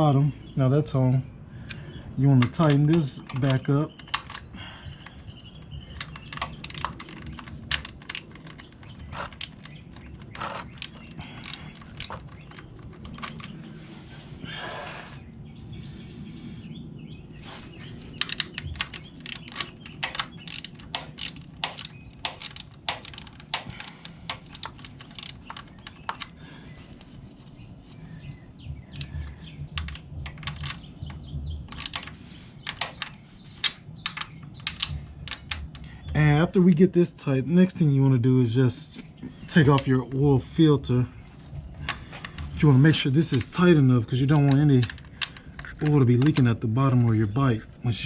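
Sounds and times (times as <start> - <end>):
ratchet wrench clicking: 10.2 - 12.3, 18.2 - 26.3.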